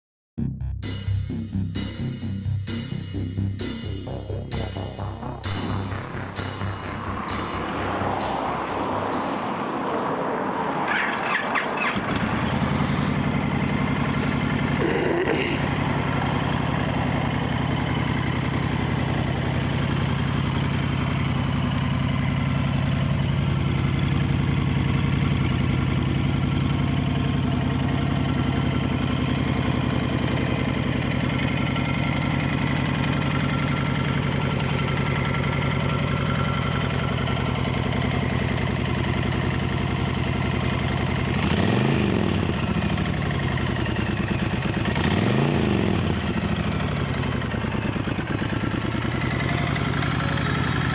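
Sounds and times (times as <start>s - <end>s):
motorcycle engine idling: 12.0s - 50.9s.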